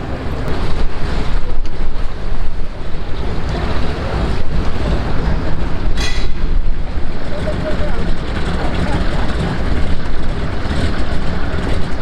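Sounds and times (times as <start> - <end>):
radial engine running: 0.0 - 12.0
wind buffeting microphone: 0.0 - 12.0.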